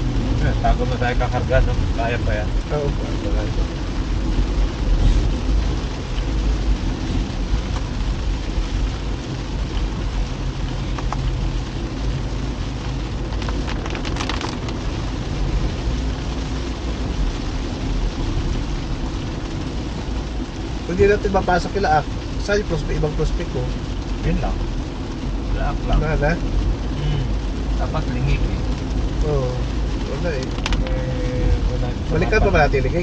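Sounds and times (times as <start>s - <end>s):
rain falling on car: 0.0s - 33.0s
tyres and engine rumble: 0.0s - 33.0s
cluster of clicks: 10.9s - 11.4s, 13.4s - 14.8s, 30.4s - 30.9s.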